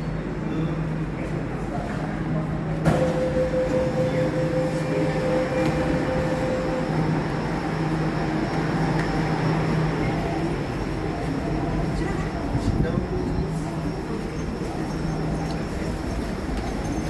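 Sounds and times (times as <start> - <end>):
train rumble and rail noise: 0.0 - 17.0
steady whine: 2.9 - 13.0.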